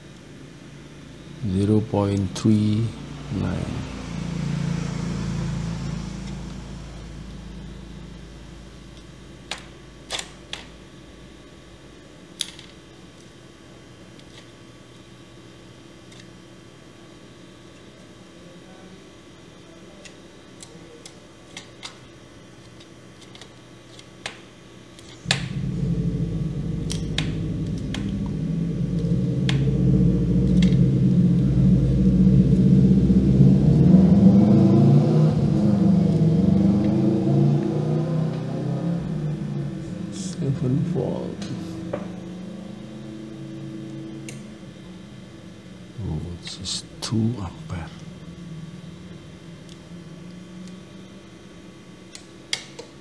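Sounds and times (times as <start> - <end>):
low hum: 0.0 - 12.1, 25.2 - 52.2.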